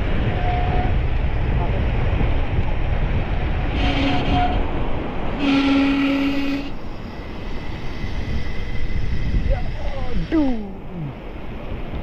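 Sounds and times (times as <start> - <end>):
vehicle horn honking: 3.8 - 4.6, 5.4 - 6.8.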